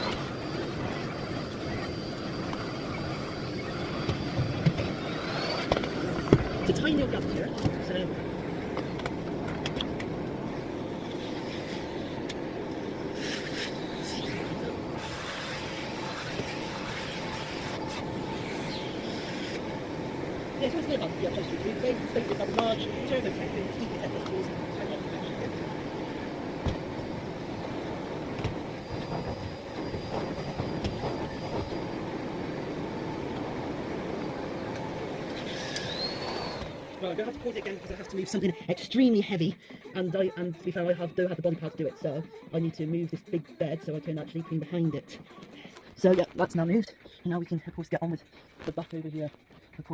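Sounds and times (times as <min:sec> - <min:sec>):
vacuum cleaner running: 0:00.0 - 0:38.2
faint high whine: 0:00.0 - 0:49.9.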